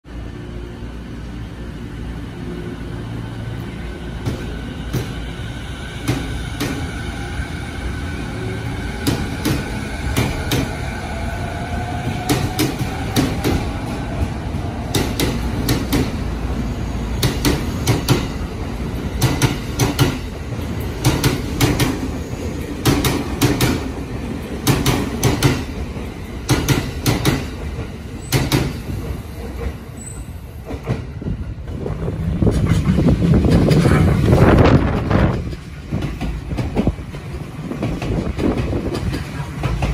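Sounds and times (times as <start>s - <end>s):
wheels clicking over rail joints: 30.7s - 39.9s.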